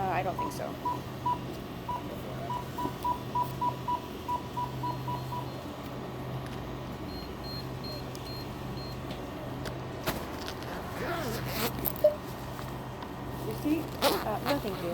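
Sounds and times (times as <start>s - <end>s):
steady low hum: 0.0s - 14.9s
higher evenly spaced beeps: 0.3s - 5.5s
keypad beeping: 0.4s - 5.5s.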